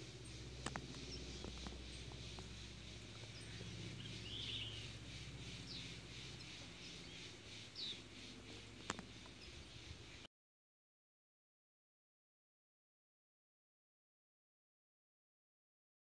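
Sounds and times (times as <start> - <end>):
bird chirps: 0.0 - 10.3
steady low hum: 0.0 - 10.3.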